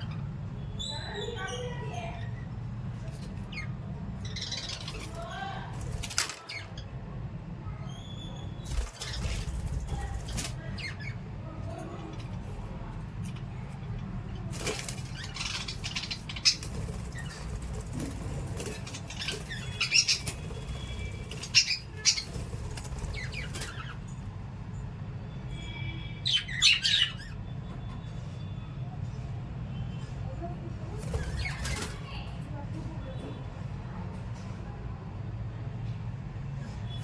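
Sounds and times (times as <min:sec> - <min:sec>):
birds chirping and squawking: 0:00.0 - 0:07.0, 0:07.9 - 0:24.6, 0:25.5 - 0:27.5, 0:31.0 - 0:32.4
birds fluttering wings: 0:04.3 - 0:06.7, 0:08.6 - 0:11.2, 0:12.0 - 0:24.4, 0:30.9 - 0:32.5
steady low hum: 0:08.6 - 0:25.2.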